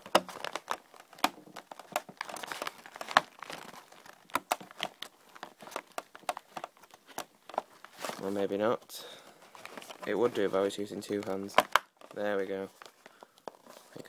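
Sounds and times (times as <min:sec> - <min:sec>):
plastic clicks and knocks: 0:00.0 - 0:07.7, 0:11.5 - 0:12.2
paper dust bag crinkling: 0:00.0 - 0:14.0.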